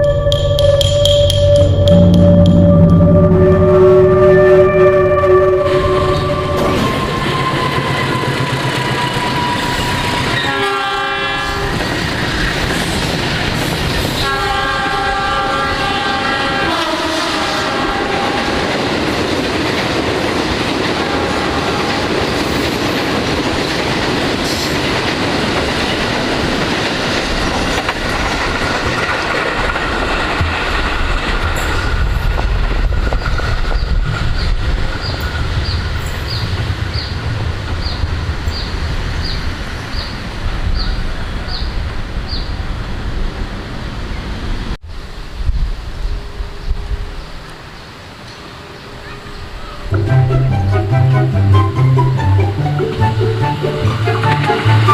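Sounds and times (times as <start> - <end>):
train horn blasts: 0.0 - 11.8, 14.2 - 18.7, 20.9 - 22.1, 49.9 - 54.9
train wheels on rails: 0.0 - 50.3, 52.0 - 54.9.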